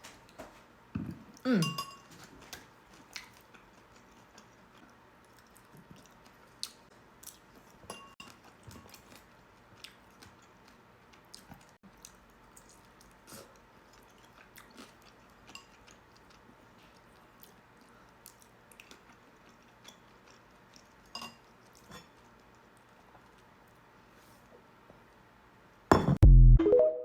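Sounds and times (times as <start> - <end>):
close-up chewing: 2.4 - 23.8
short pitched tones: 26.2 - 27.0.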